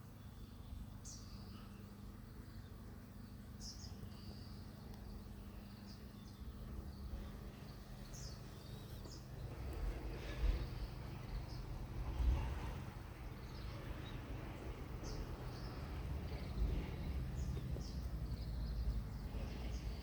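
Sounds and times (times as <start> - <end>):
steady low rumble: 4.1 - 20.0.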